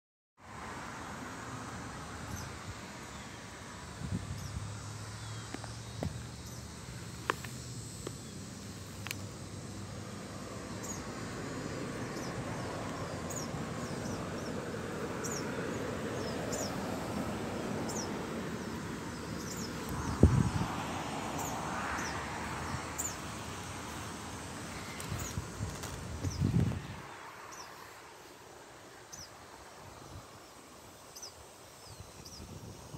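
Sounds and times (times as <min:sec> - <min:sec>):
outdoor hiss: 0:00.4 - 0:32.9
bird chirping: 0:04.3 - 0:06.8, 0:10.8 - 0:11.1, 0:12.1 - 0:14.6, 0:15.2 - 0:16.8, 0:17.8 - 0:20.5, 0:21.4 - 0:23.3, 0:29.1 - 0:29.4, 0:30.0 - 0:32.9.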